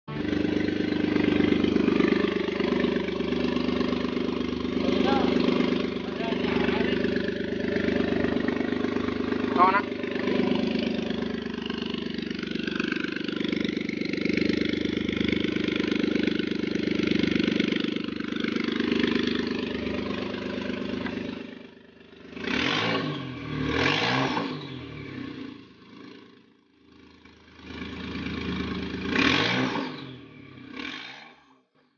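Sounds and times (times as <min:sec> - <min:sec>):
turbo engine idling and revving: 0:00.0 - 0:31.9.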